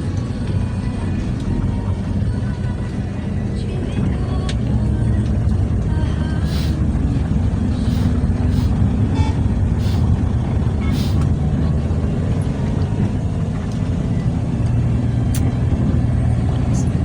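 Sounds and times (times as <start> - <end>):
diesel truck engine running: 0.0 - 17.0
short hisses: 6.4 - 6.8, 7.8 - 8.8, 9.8 - 10.2, 10.8 - 11.3.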